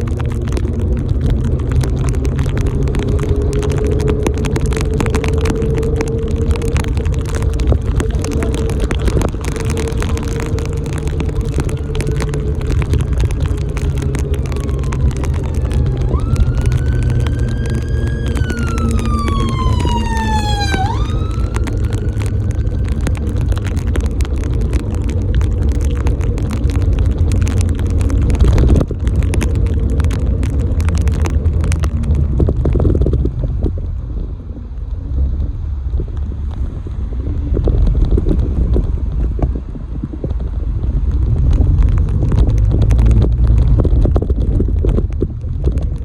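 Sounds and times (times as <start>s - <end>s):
road traffic rumble: 0.0s - 46.0s
wind on microphone: 0.0s - 46.0s
vehicle siren wailing: 2.2s - 24.7s.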